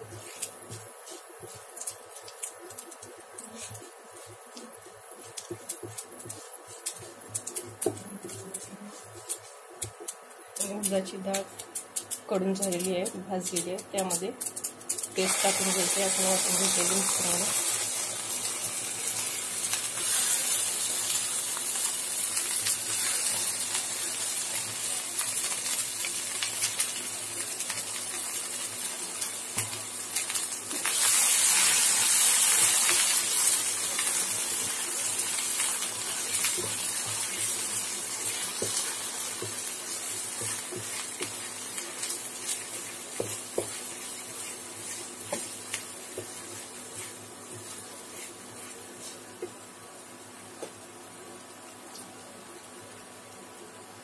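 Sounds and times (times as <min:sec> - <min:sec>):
spatula scraping and tapping: 0:00.0 - 0:15.2, 0:29.2 - 0:30.9, 0:32.5 - 0:49.6
paste sizzling in oil: 0:14.4 - 0:49.7.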